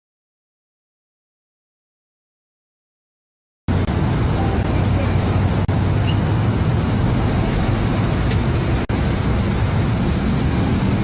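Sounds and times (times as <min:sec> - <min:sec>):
vehicle engine and tyres rumbling: 0:03.7 - 0:11.0.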